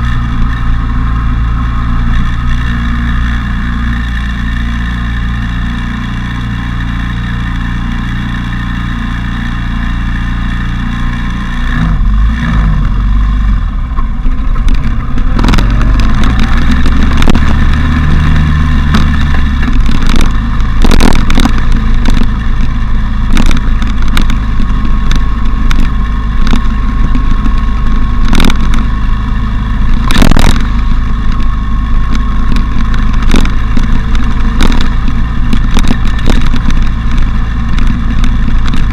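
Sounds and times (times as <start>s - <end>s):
motorcycle engine: 0.0s - 38.9s
wind rush on camera: 10.3s - 38.9s
sharp thumps: 13.9s - 38.9s.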